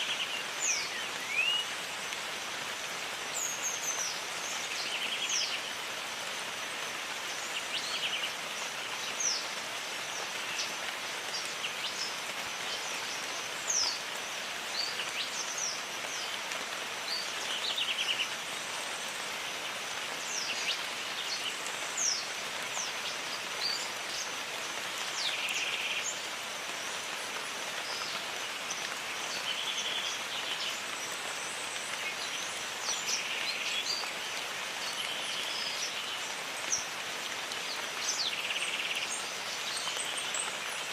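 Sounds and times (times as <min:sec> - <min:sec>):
rain hissing: 0:00.0 - 0:40.9.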